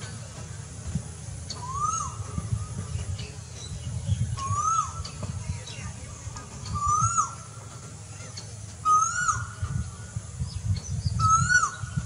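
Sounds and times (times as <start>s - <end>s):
bird whistled call: 1.5s - 6.0s, 6.6s - 7.6s, 8.2s - 12.0s
faint high bird chirps: 1.5s - 12.0s.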